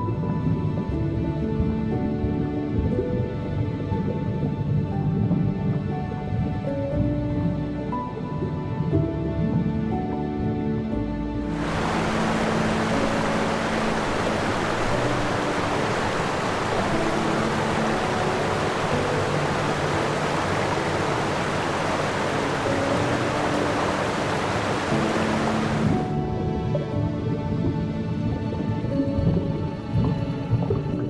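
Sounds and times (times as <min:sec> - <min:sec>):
faint background music: 0:00.0 - 0:31.0
steady rushing noise: 0:11.5 - 0:26.2.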